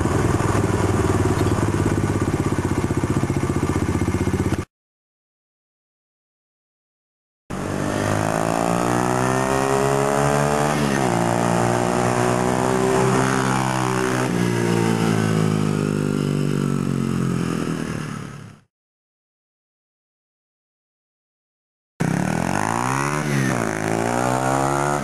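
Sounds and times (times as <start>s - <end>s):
motorcycle engine accelerating: 0.0s - 4.7s, 7.5s - 18.7s, 22.0s - 25.0s.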